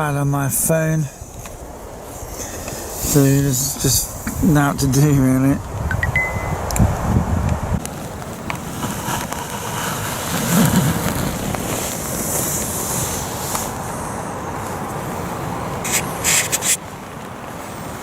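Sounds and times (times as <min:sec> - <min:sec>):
rain on a tarp: 0:07.8 - 0:18.0.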